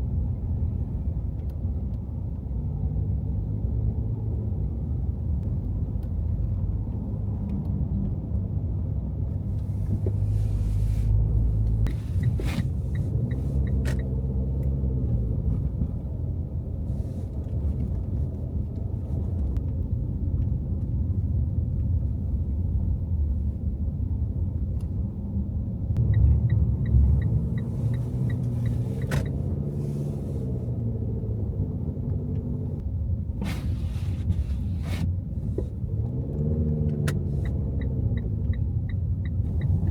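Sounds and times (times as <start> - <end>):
car engine and road rumble: 0.0 - 39.9
light regular ticking: 26.0 - 29.6, 36.9 - 39.9.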